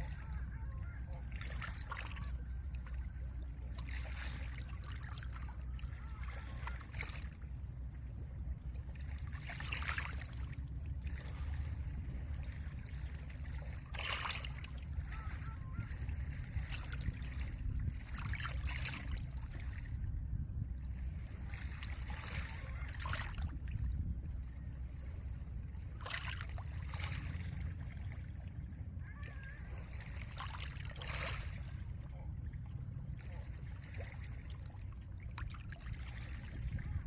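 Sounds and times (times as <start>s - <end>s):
low rumble of wind: 0.0s - 37.0s.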